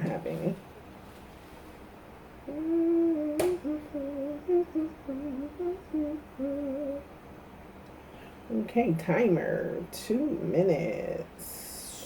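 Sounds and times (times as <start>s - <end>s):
woman humming a tune: 2.5s - 7.1s
sharp click: 3.4s - 3.6s.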